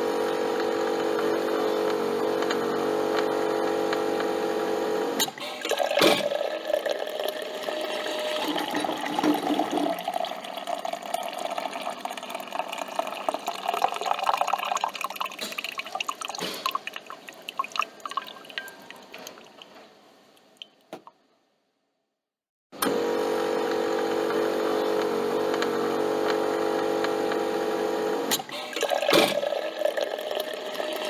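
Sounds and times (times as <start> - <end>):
coffee dripping into cup: 8.4 - 19.7.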